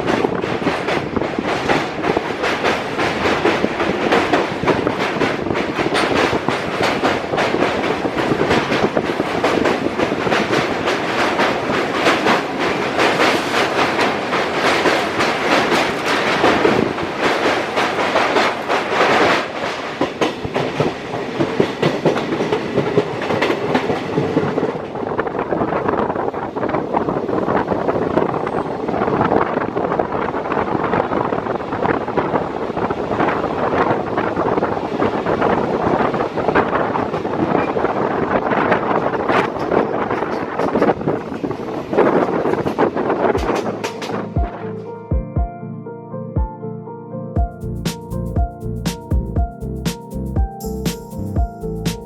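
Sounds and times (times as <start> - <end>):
train wheels clattering over rail joints: 0.0 - 25.0, 36.5 - 44.2.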